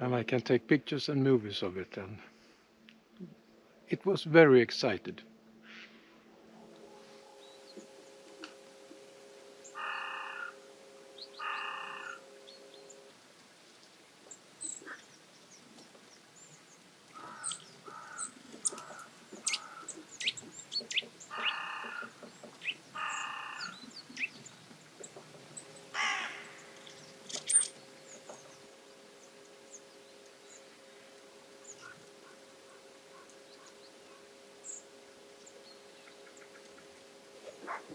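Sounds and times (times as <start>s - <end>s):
loud harsh bird calls: 9.7s - 10.6s, 11.4s - 12.2s, 14.3s - 28.6s
small birds chirping and clicking: 13.7s - 25.9s, 26.6s - 28.6s, 31.6s - 33.8s.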